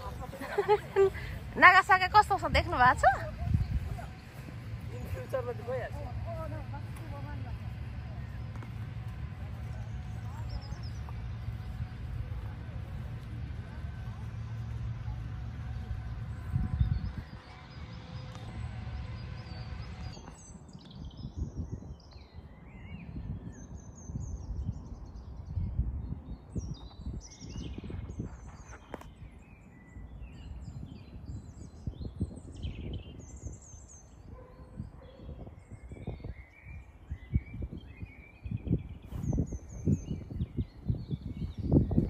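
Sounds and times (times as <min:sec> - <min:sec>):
birds chirping and trilling: 0:00.0 - 0:13.0, 0:14.5 - 0:42.0
low rumble: 0:00.0 - 0:22.0.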